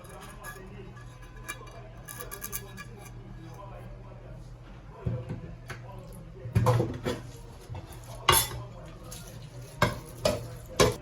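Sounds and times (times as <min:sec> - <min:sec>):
utensils clinking against dishes: 0:00.0 - 0:03.7, 0:06.6 - 0:11.0.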